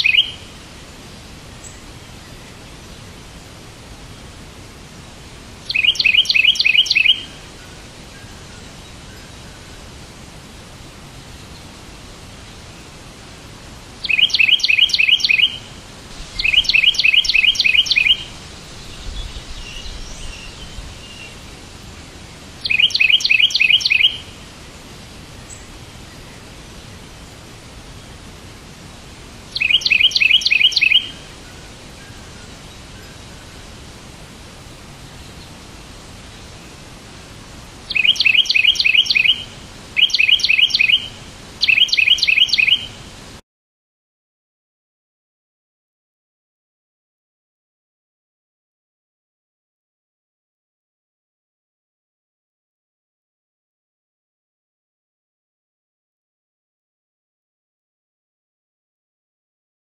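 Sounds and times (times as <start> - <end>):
fainter bird chirps: 0.0 - 0.4, 5.7 - 7.3, 14.0 - 15.6, 16.4 - 21.4, 22.6 - 24.3, 29.5 - 31.2, 37.9 - 43.0
bird chirping in bursts: 0.0 - 0.6, 5.6 - 7.6, 14.0 - 24.4, 29.5 - 33.3, 37.9 - 43.0
faint steady hiss: 0.0 - 43.4.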